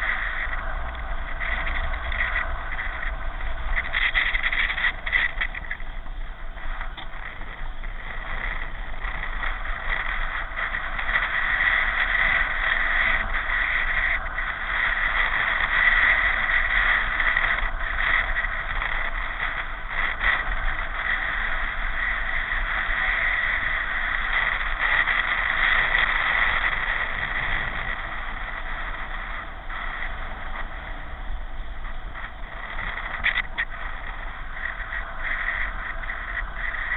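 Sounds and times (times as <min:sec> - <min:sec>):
pedal car wind and tyre noise: 0:00.0 - 0:36.9.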